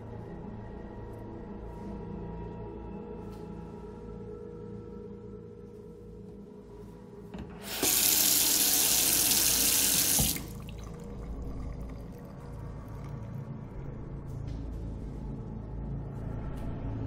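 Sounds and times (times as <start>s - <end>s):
water running into metal sink: 7.6s - 11.0s.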